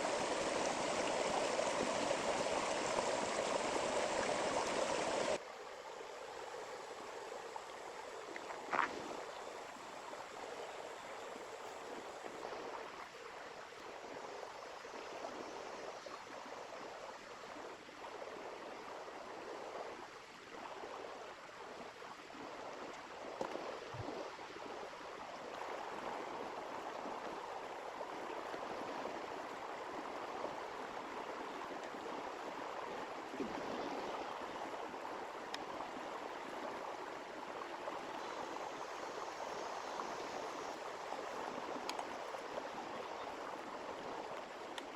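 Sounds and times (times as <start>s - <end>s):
river flowing over stones: 0.0s - 15.7s, 16.3s - 44.9s.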